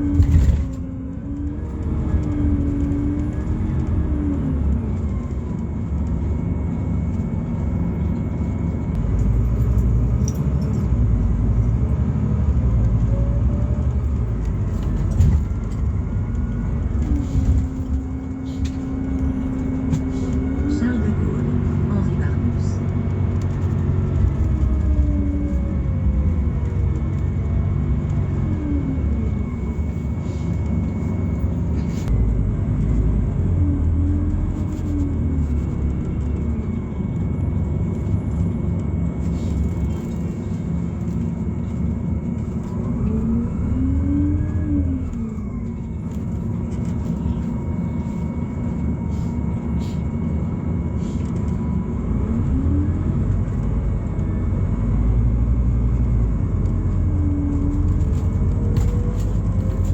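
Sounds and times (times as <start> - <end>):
bus engine low rumble: 0.0 - 59.9
drivetrain whine: 0.0 - 59.9.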